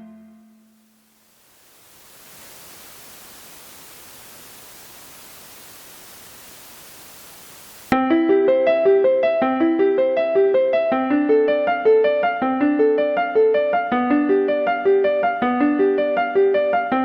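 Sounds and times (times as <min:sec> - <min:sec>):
line noise hiss: 0:00.0 - 0:08.0
electronic piano playback: 0:07.9 - 0:17.0.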